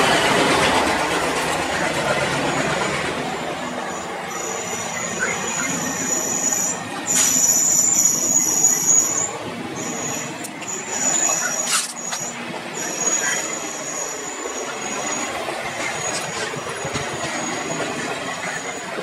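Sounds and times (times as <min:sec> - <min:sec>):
wheels rumbling on rail: 0:00.0 - 0:19.0
high thin wheel squeal: 0:03.9 - 0:18.8
clacks over rail joints: 0:15.5 - 0:19.0.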